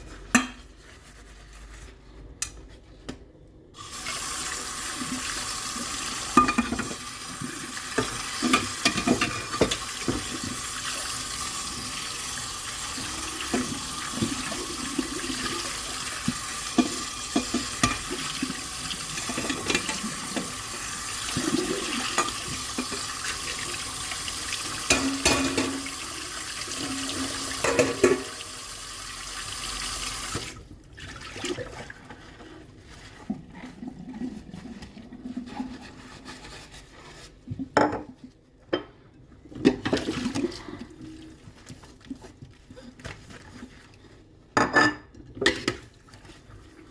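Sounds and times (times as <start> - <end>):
dishes clinking and knocking: 8.0 - 10.3, 24.9 - 25.9, 27.6 - 28.4, 44.6 - 45.7.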